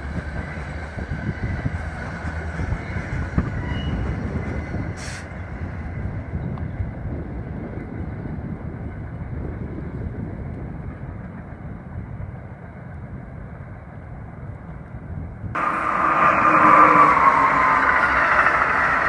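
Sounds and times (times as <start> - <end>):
loud passing train: 0.0 - 19.0
train rumbling away: 15.5 - 19.0
steady tone: 15.6 - 19.0.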